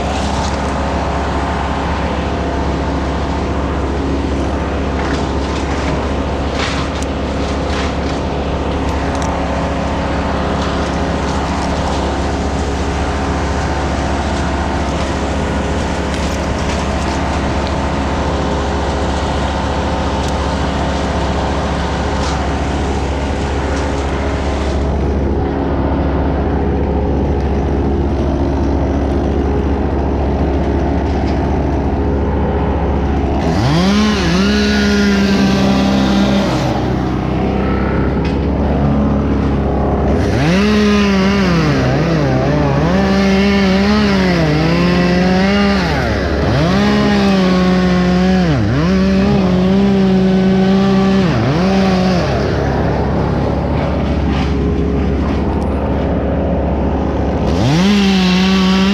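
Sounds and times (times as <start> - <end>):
steady engine drone: 0.0 - 58.9
chainsaw cutting wood: 4.8 - 25.0, 33.0 - 37.5, 39.3 - 56.4, 57.0 - 58.9.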